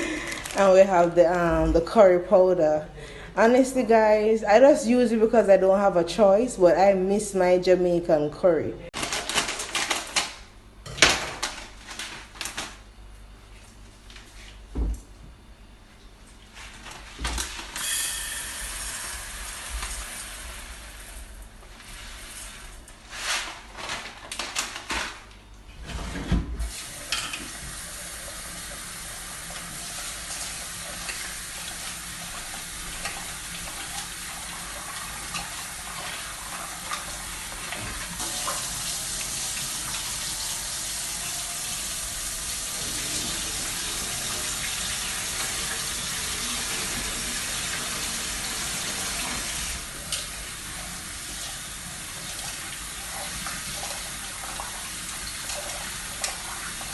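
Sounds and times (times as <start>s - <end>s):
tap water running into sink: 26.7s - 56.9s.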